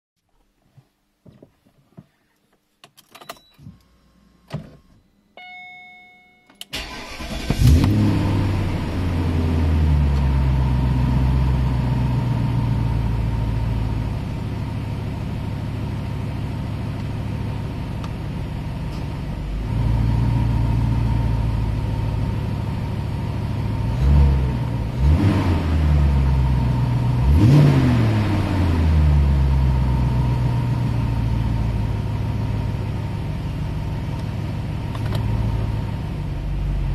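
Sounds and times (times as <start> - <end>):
ignition clicks: 2.8 - 8.1, 18.0 - 18.2, 34.1 - 35.3
short electronic chime: 5.4 - 6.6
car engine starting and idling: 6.5 - 36.9
car engine revving: 6.8 - 13.4, 19.5 - 33.4.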